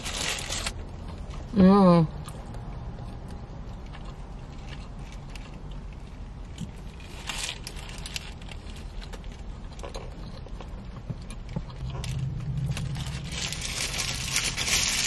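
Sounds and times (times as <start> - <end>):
paper wrapper rustling: 0.0 - 0.8, 7.0 - 9.3, 12.7 - 15.0
low hum: 7.8 - 15.0.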